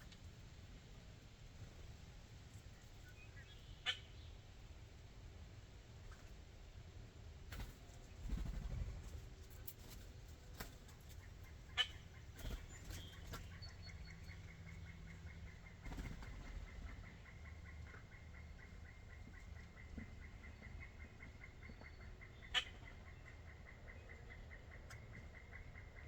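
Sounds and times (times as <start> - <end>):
bird wings fluttering: 7.5 - 11.1, 12.4 - 13.5, 15.8 - 16.6.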